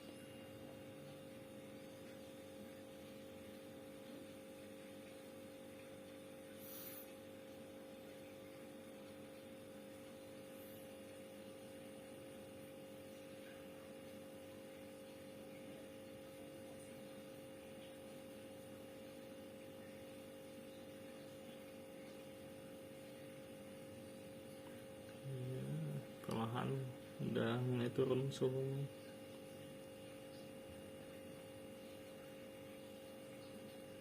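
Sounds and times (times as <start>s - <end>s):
refrigerator hum: 0.0s - 34.0s.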